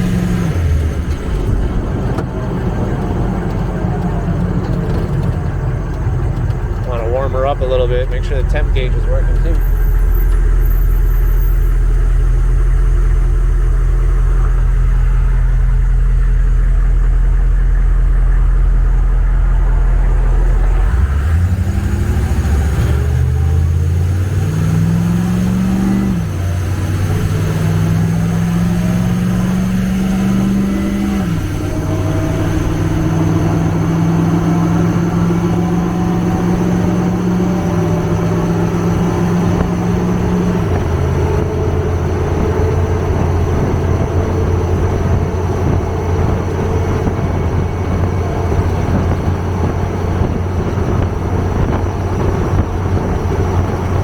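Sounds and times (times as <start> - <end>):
diesel engine idling and revving: 0.0 - 54.0.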